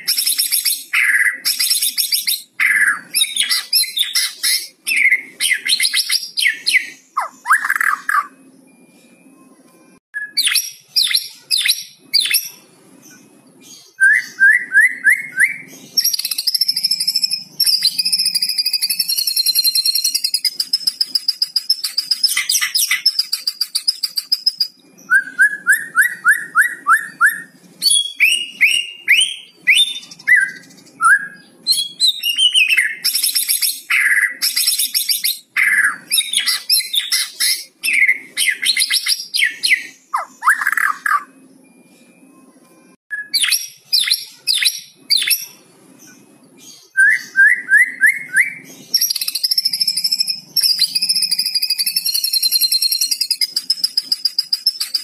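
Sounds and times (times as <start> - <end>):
bird singing whistled phrases: 0.0 - 8.5, 10.2 - 12.6, 13.8 - 41.4, 43.1 - 45.6, 46.7 - 55.0
fast rattling bird trill: 49.0 - 55.0.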